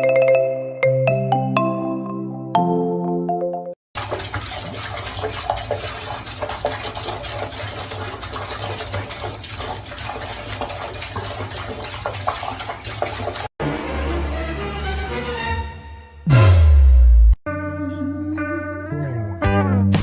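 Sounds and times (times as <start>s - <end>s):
water running: 4.0s - 13.5s
water splashes: 4.0s - 13.5s.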